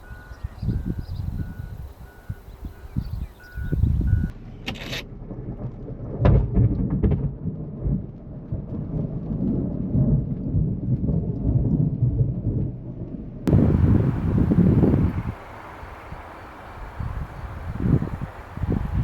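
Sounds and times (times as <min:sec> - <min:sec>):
thunder rumbling: 0:00.0 - 0:04.4, 0:13.5 - 0:19.0.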